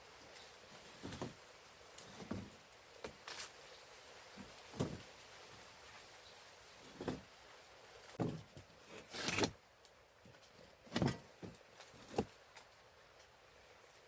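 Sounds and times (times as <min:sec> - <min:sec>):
short knocks and scrapes: 0:00.8 - 0:01.4, 0:02.0 - 0:03.4, 0:04.4 - 0:05.1, 0:06.8 - 0:07.3, 0:08.1 - 0:09.6, 0:10.9 - 0:12.3.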